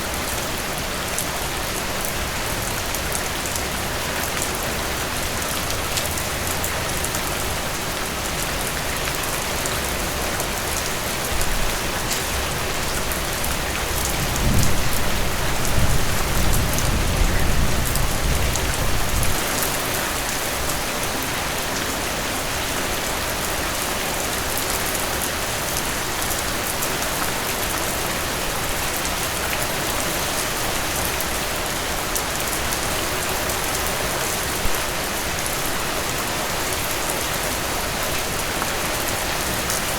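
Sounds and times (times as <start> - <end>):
heavy rain falling: 0.0 - 39.9
thunder rumbling: 14.0 - 19.4.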